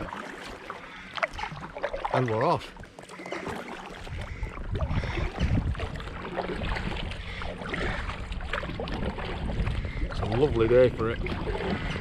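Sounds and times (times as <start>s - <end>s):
paddle splashing in water: 0.0s - 12.0s
wind rumble on microphone: 3.9s - 12.0s.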